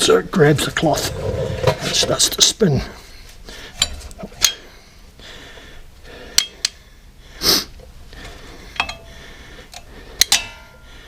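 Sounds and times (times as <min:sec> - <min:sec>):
short breath-like hiss: 0:07.4 - 0:07.8
screwdriver clinking on metal: 0:08.8 - 0:09.1.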